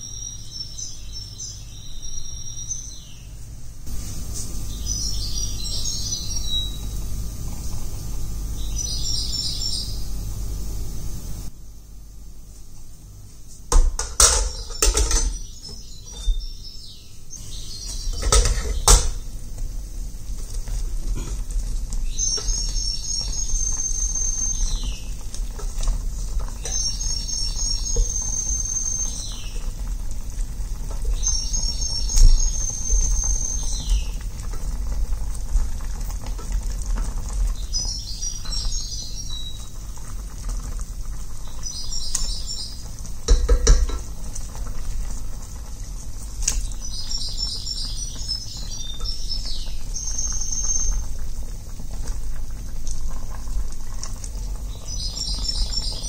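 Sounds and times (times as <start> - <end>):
bird singing a trill: 0.0 - 3.4, 4.6 - 7.0, 8.5 - 10.3, 14.5 - 19.2, 22.0 - 25.2, 26.6 - 29.7, 31.0 - 34.2, 37.6 - 39.7, 46.8 - 51.0, 54.7 - 56.0
kitchen utensils clattering: 13.8 - 15.5, 18.1 - 19.2.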